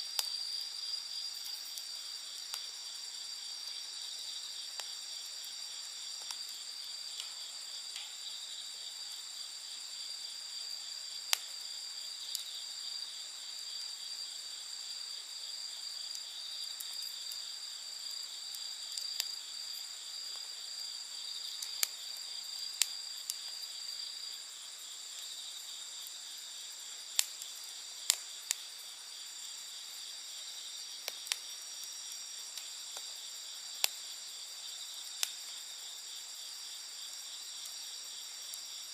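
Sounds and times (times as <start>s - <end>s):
campfire popping and crackling: 0.0s - 0.6s, 1.3s - 8.4s, 18.2s - 23.8s, 24.8s - 34.2s, 35.0s - 35.6s
night insects chorus: 0.0s - 38.9s.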